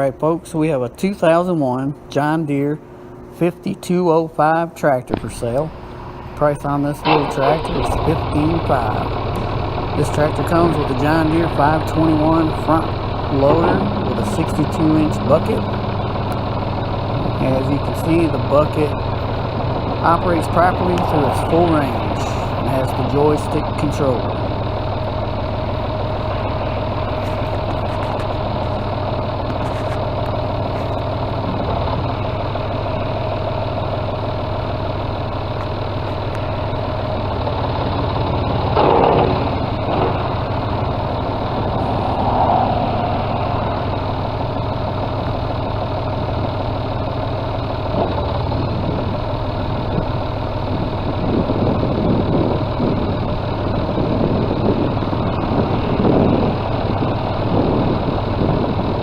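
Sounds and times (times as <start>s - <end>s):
tractor diesel engine idling: 5.1s - 41.9s, 43.0s - 59.0s.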